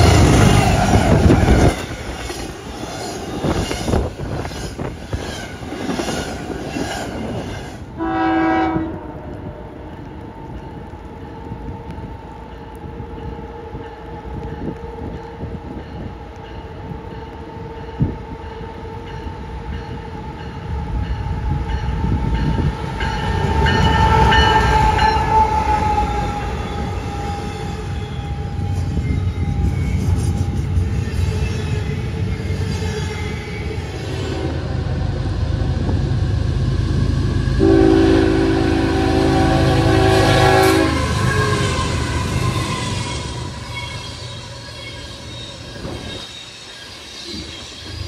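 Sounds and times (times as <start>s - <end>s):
train rumbling: 0.0s - 48.0s
train horn: 7.9s - 10.0s, 22.5s - 30.6s, 34.0s - 35.2s, 37.6s - 44.1s.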